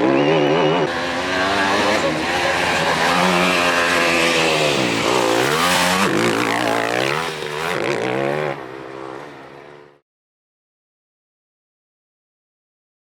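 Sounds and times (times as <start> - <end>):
truck engine revving: 0.0 - 9.4.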